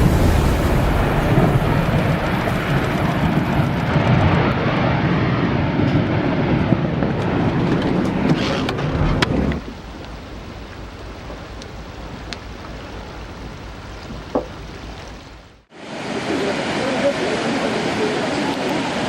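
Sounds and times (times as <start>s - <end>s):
storm wind buffeting microphone: 0.0s - 15.0s.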